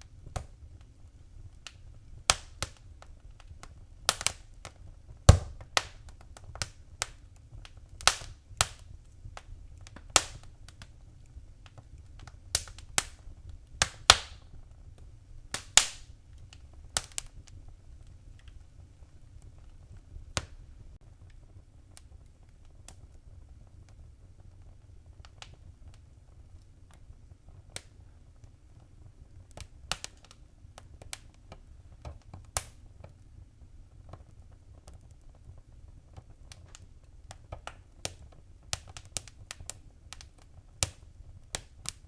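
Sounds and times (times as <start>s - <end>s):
wood fire crackling: 0.0s - 42.0s.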